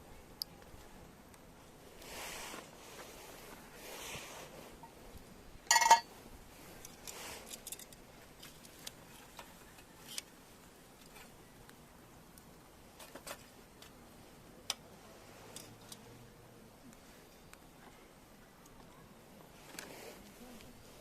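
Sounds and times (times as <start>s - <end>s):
campfire crackling: 0.0s - 21.0s
ringing clink: 5.7s - 6.1s.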